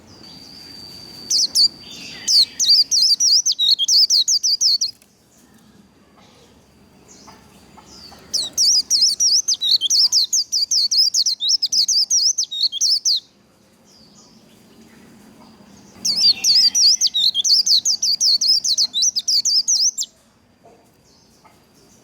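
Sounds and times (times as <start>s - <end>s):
bird warbling song: 0.0s - 5.0s, 7.1s - 13.3s, 14.0s - 20.1s.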